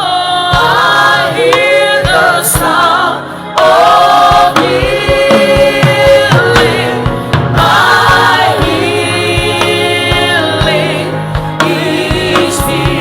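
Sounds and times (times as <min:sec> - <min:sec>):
choir singing in harmony: 0:00.0 - 0:13.0
drum beat: 0:03.6 - 0:13.0.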